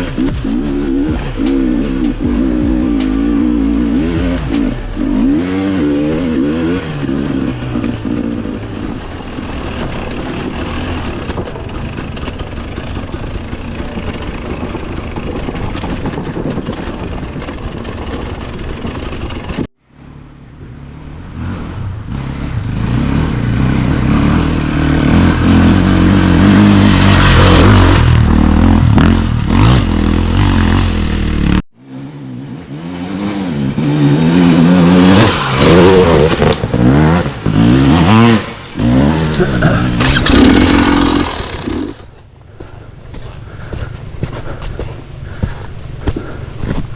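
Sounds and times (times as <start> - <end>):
dirt bike engine revving: 0.0 - 19.7, 20.8 - 42.2
clatter: 7.6 - 19.7
wind noise: 8.6 - 19.7.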